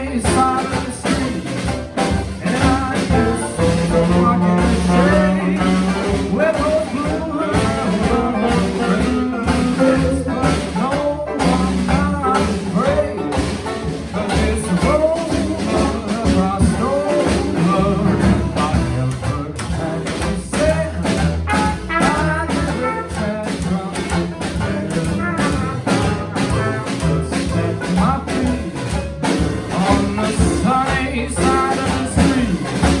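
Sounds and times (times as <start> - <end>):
live jazz band playing: 0.0 - 33.0.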